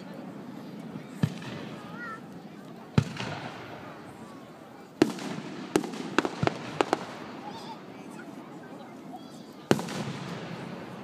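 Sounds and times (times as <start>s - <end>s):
steady background noise: 0.0s - 11.0s
fireworks bangs: 2.9s - 4.1s, 5.0s - 7.8s, 9.7s - 11.0s
fireworks cracks: 5.0s - 7.8s, 9.7s - 11.0s.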